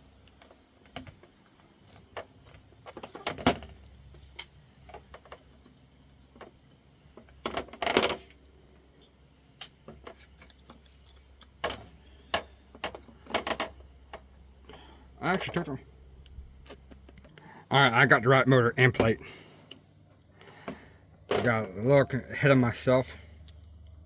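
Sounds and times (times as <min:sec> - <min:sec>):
metal parts clattering: 0:07.4 - 0:08.5.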